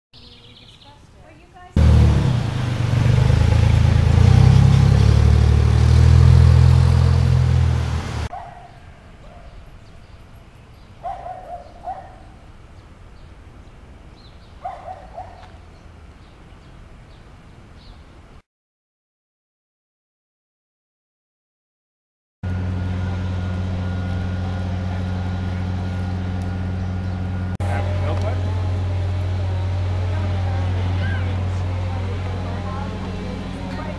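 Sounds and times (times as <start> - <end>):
loud engine running: 1.8 - 8.3, 22.4 - 33.9.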